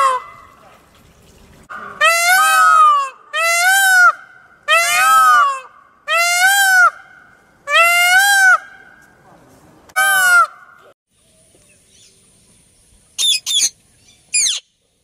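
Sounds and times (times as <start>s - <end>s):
peacock calling: 1.7s - 9.0s, 9.9s - 10.9s, 13.2s - 14.8s.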